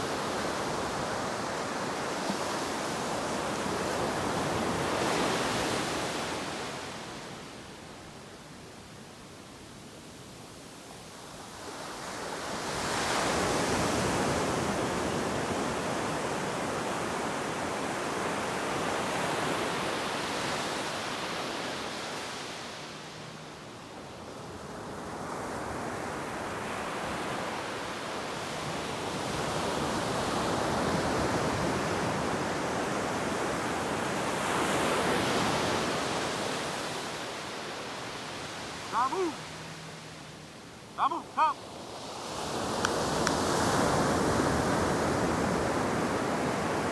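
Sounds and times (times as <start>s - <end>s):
ocean surf breaking: 30.3s - 46.9s.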